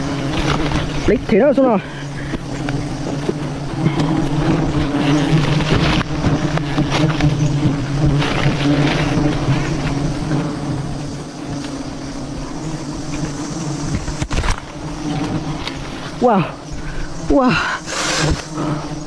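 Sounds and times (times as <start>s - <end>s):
bees buzzing: 0.0s - 19.0s
knocks and rustles: 13.8s - 15.8s.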